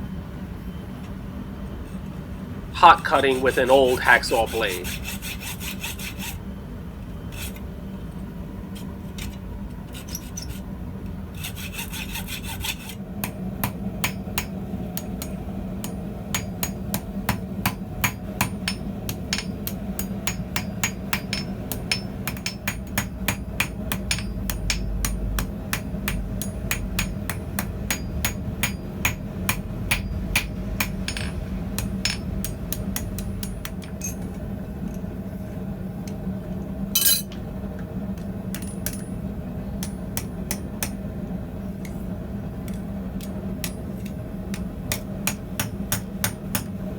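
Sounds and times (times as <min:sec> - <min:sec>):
hacksaw sawing hot steel: 0:02.8 - 0:06.4, 0:11.4 - 0:13.0
hammer blows on anvil: 0:37.0 - 0:37.4.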